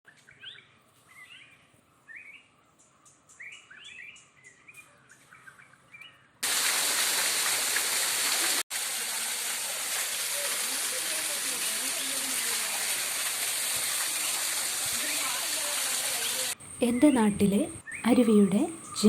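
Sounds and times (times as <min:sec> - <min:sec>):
waterfall rushing: 0:06.4 - 0:16.6
birds chirping: 0:13.6 - 0:19.0.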